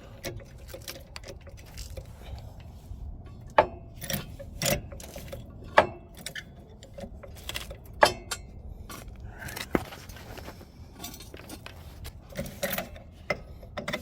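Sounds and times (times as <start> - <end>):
metal clanks and knocks: 3.2 - 10.2.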